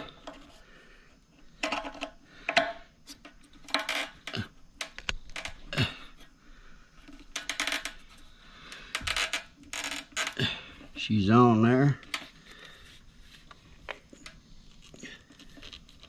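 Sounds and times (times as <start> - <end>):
small hard parts clicking: 1.5 - 5.6, 7.0 - 10.6.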